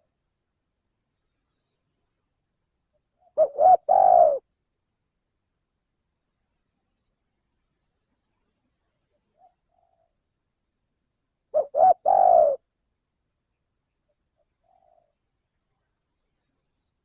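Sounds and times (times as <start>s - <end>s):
dove cooing: 3.2s - 4.5s, 11.5s - 12.7s, 14.4s - 15.2s.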